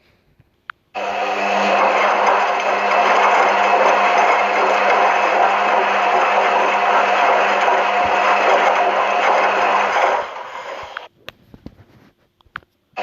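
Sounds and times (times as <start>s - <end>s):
washing machine running: 1.0s - 11.1s.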